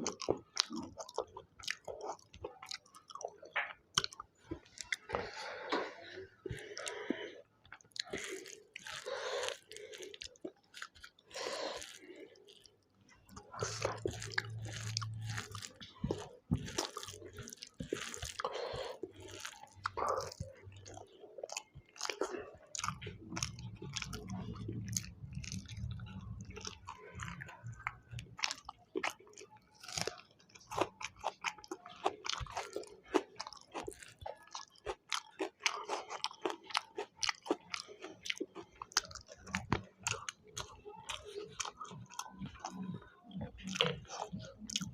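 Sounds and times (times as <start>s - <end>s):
food crunching: 0.0s - 44.9s
person chewing food: 0.0s - 44.9s.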